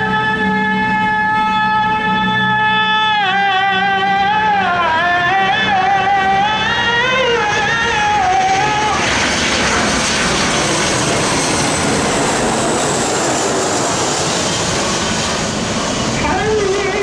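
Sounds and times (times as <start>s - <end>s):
person singing: 0.0s - 9.0s
airliner engines rushing: 0.0s - 17.0s.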